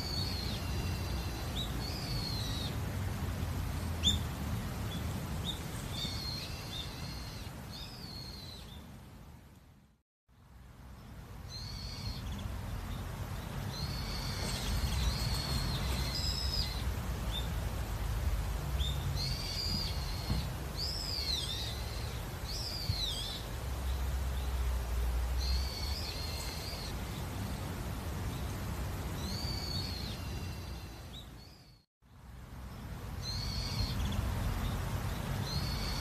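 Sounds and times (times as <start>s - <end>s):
songbirds whistling: 0.0s - 2.8s, 3.8s - 4.3s, 4.9s - 8.9s, 11.5s - 17.6s, 18.8s - 24.6s, 25.3s - 27.3s, 29.2s - 31.8s, 33.2s - 36.0s.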